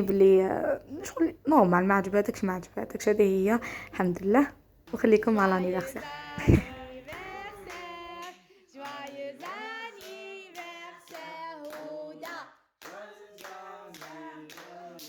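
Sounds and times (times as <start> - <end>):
hand clapping: 4.9 - 15.0
family singing together: 5.2 - 15.0.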